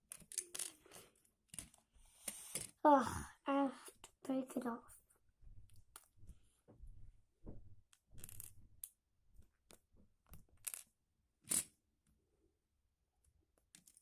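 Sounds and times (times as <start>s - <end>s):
plastic bricks clicking and scraping: 0.1s - 2.7s, 7.9s - 9.0s.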